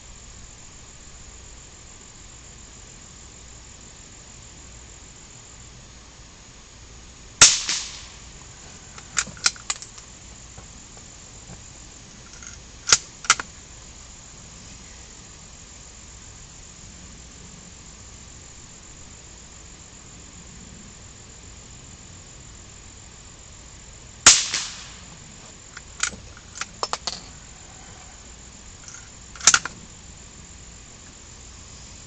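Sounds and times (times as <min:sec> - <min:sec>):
gunshot with echo: 0:07.4 - 0:08.2, 0:24.3 - 0:25.1
sharp clicks or cracks: 0:07.4 - 0:08.2, 0:09.0 - 0:10.0, 0:12.3 - 0:13.5, 0:24.3 - 0:25.1, 0:25.8 - 0:27.2, 0:28.9 - 0:29.8.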